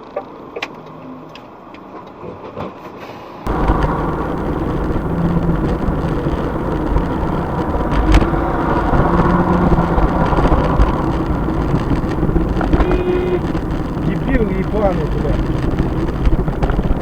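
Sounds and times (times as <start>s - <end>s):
car engine and road noise: 3.5s - 17.0s.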